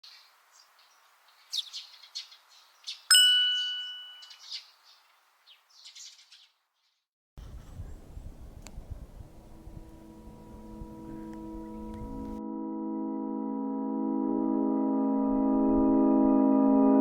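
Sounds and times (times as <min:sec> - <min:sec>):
small birds chirping: 0:00.0 - 0:12.4
bell-like ding: 0:03.1 - 0:04.4
low rumbling noise: 0:07.4 - 0:12.4.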